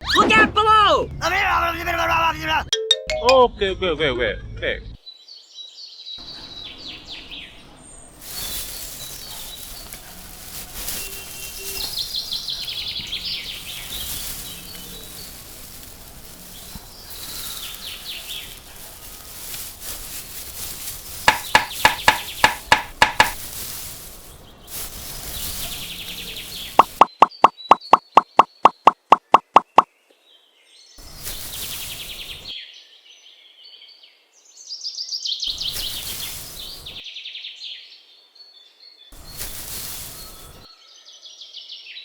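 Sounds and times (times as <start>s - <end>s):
birds chirping: 5.0s - 30.2s, 31.0s - 32.5s, 35.5s - 37.0s, 39.2s - 40.7s
sharp pops: 8.3s - 25.6s, 26.3s - 29.9s.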